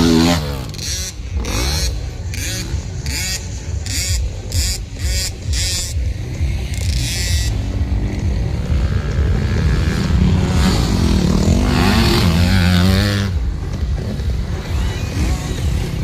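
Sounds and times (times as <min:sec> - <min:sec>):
motocross bike engine revving: 0:00.0 - 0:16.0.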